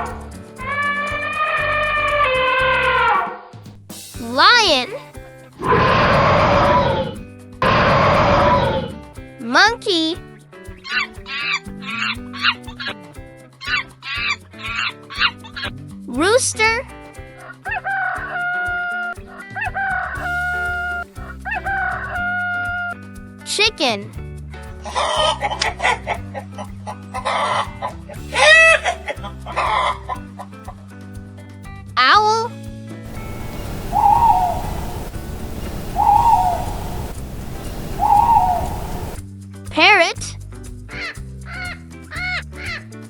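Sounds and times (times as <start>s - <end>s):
background music: 0.0s - 43.0s
rooster crowing: 5.6s - 8.9s, 33.1s - 39.2s
owl hooting: 5.6s - 9.0s, 20.2s - 21.1s, 33.1s - 39.2s
background hiss: 20.2s - 21.2s, 33.1s - 39.2s.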